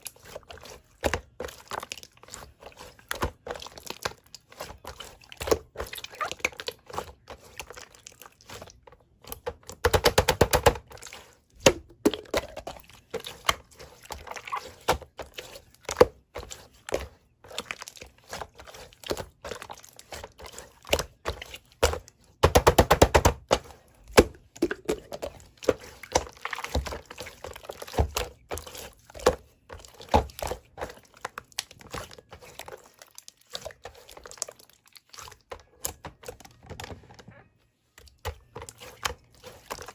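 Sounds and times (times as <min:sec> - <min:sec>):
slime squeezed by hand: 0:05.8 - 0:06.8, 0:14.2 - 0:14.9.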